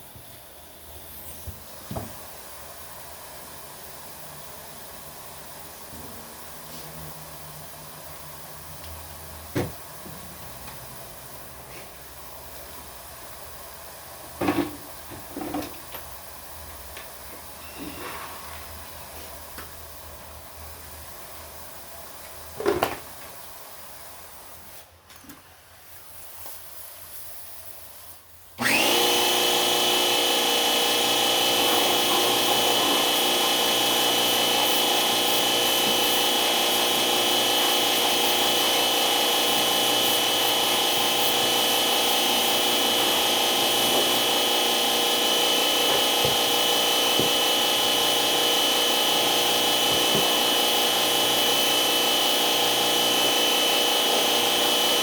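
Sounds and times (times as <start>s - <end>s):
short sliding squeak: 17.6s - 18.4s
electric power tool running: 28.6s - 55.0s.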